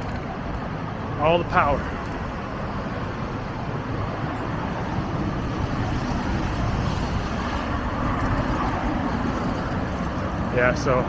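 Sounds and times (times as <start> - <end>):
city road traffic rumble: 0.0 - 11.0.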